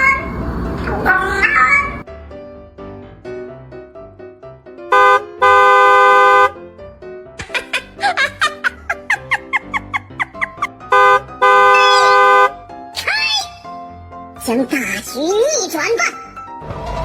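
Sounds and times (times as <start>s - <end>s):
light background music: 2.0s - 17.0s
car horn honking: 4.9s - 6.6s, 10.9s - 12.6s
squeaky chirps: 11.7s - 12.3s.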